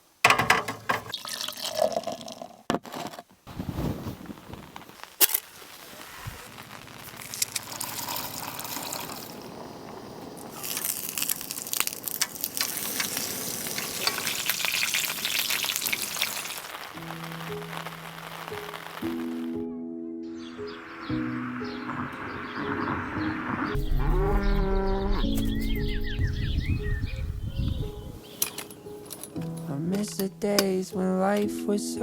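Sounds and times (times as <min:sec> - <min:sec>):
liquid splashing and pouring: 0:01.0 - 0:02.5, 0:10.5 - 0:16.9
crackling sizzling hiss: 0:03.3 - 0:19.7, 0:20.5 - 0:26.2, 0:27.8 - 0:32.0.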